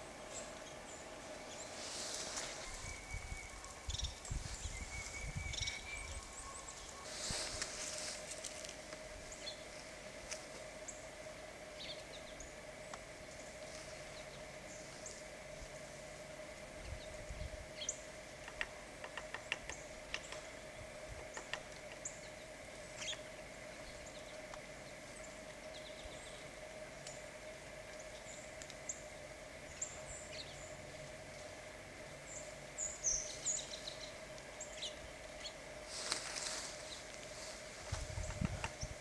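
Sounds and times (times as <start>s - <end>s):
small birds chirping: 0.0s - 9.8s, 16.8s - 27.4s, 32.2s - 39.0s
faint hum: 0.0s - 39.0s.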